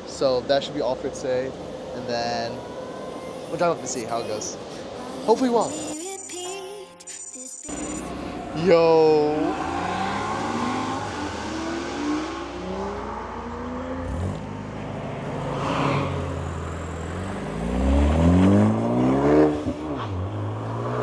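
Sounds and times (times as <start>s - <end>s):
sports car engines revving: 7.7s - 21.0s.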